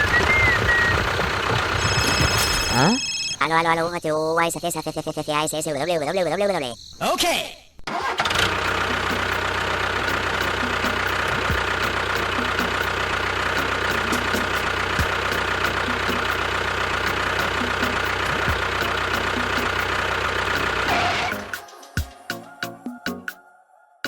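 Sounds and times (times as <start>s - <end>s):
small motor running with ticking: 0.0s - 3.4s, 8.3s - 21.3s.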